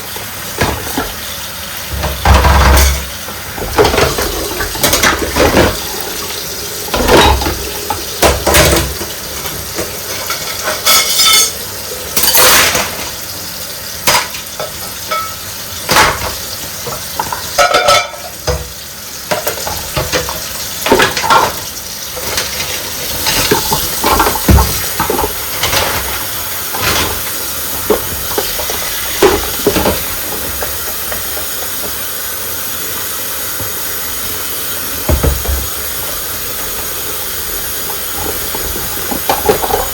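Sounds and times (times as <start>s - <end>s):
running tap water: 0.0s - 39.9s
crockery and cutlery clinking: 6.9s - 13.2s, 14.1s - 16.3s, 16.9s - 18.7s.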